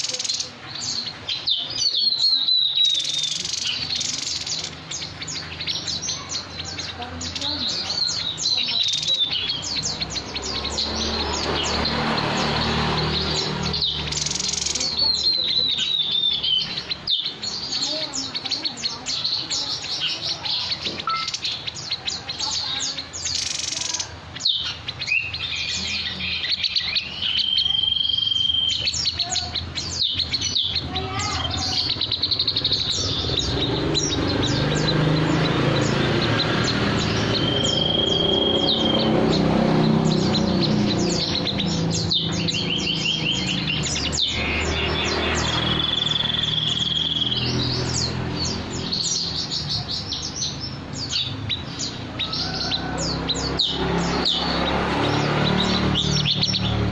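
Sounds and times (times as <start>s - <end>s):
songbird chirping and trilling: 0.0s - 56.9s
high bird whistle: 21.0s - 21.5s, 37.0s - 39.1s, 41.2s - 47.5s.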